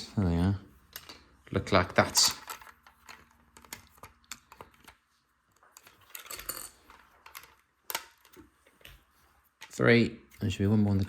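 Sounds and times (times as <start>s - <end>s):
plastic bricks clicking and rattling: 5.6s - 8.4s.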